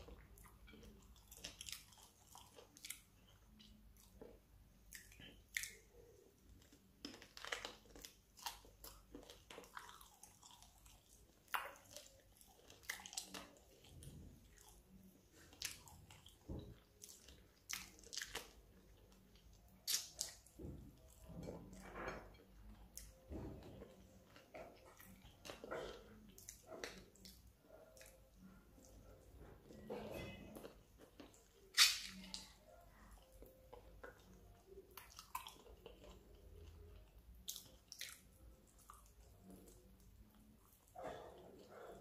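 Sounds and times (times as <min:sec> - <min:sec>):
chewing crunchy chicken feet: 0:06.5 - 0:14.8.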